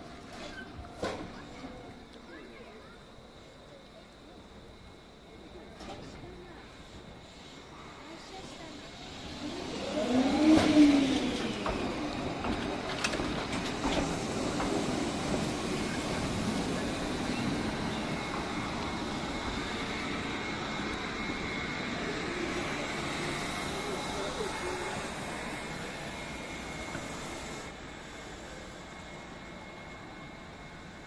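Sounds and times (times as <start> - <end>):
electric train rolling past: 0.0 - 31.0
faint high whine: 14.2 - 31.0.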